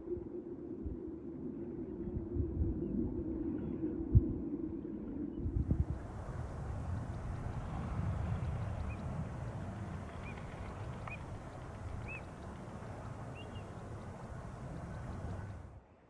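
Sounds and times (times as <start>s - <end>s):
wind noise on microphone: 0.0s - 15.8s
short high bird calls: 10.1s - 15.6s.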